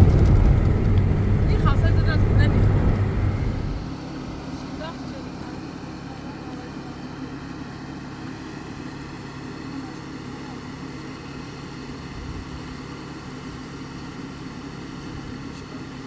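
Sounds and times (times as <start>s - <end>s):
steady motor drone: 0.0s - 7.4s.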